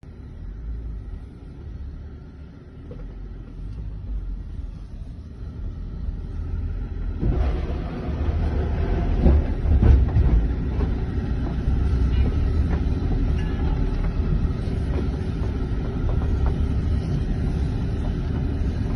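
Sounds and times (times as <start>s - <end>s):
vehicle rumble: 0.0s - 18.9s
rattles and knocks: 7.3s - 18.9s.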